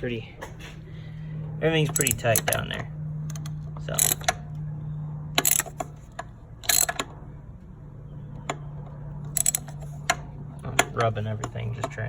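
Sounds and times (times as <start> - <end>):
steady low hum: 0.0 - 12.0
hand ratchet clicking: 1.8 - 2.7, 3.3 - 4.4, 5.4 - 7.1, 9.3 - 10.2.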